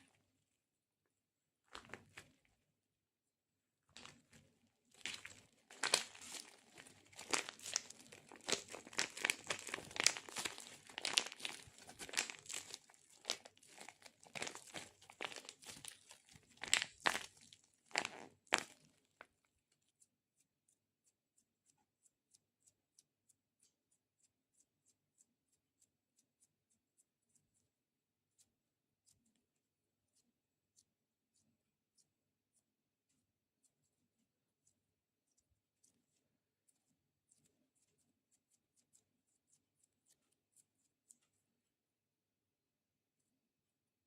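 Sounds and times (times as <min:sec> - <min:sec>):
faint regular ticks: 0:03.9 - 0:41.8
sticky crackling and peeling: 0:04.9 - 0:19.0.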